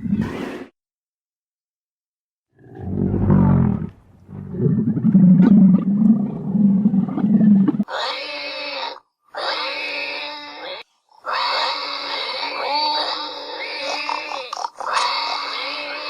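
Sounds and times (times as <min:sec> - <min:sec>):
large animal roaring: 0:02.6 - 0:07.8.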